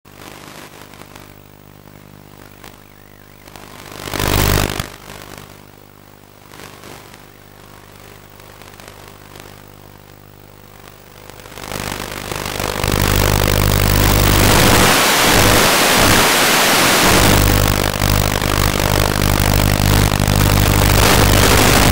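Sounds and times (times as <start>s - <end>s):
loud rush of noise: 12.5s - 21.9s.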